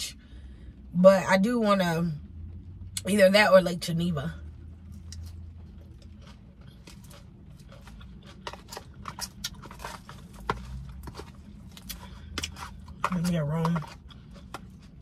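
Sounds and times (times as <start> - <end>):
close-up chewing: 4.9 - 15.0.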